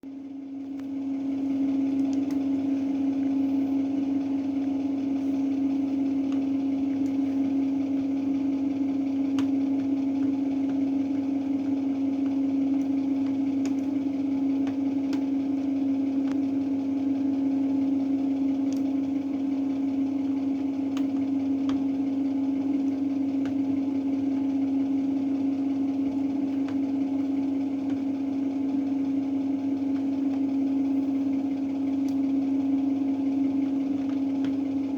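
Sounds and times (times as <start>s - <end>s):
washing machine humming: 0.0s - 34.9s.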